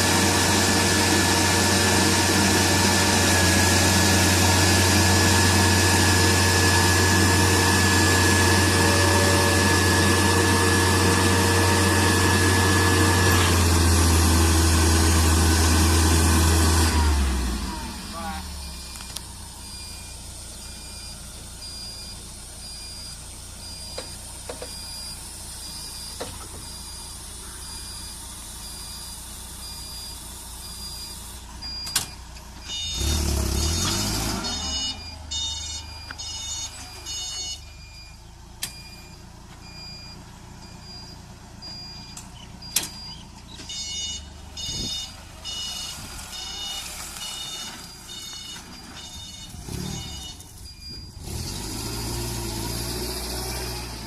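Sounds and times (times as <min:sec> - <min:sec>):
forklift engine running: 0:00.0 - 0:54.0
high warning beeps: 0:18.1 - 0:51.7.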